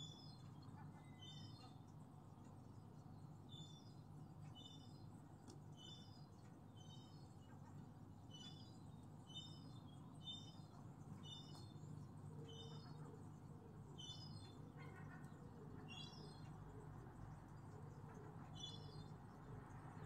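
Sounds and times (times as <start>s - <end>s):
low steady hum: 0.0s - 20.0s
faint bird calling: 12.3s - 16.9s.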